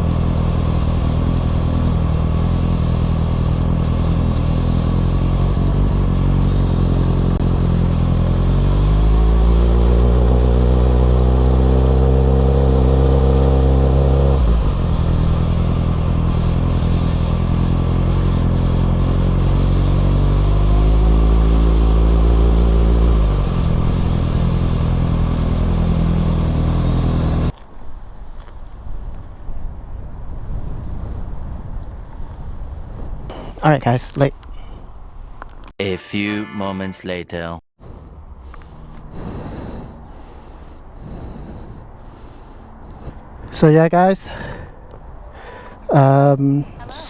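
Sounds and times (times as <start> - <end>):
motorcycle engine accelerating: 0.0 - 27.6, 37.9 - 46.1.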